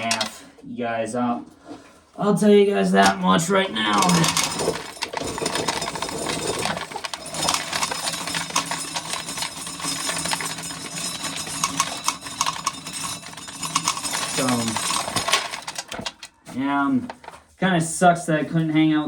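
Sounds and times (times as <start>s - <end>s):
corn kernels clicking and rattling: 0.0s - 0.4s, 3.1s - 16.4s, 17.0s - 17.4s.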